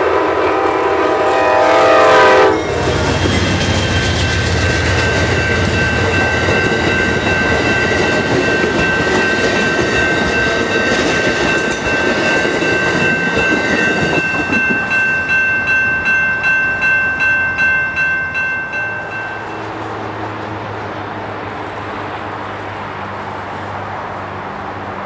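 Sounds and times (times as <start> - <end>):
crossing signal bell ringing: 2.1 - 19.9
train wheels clattering: 2.6 - 21.1.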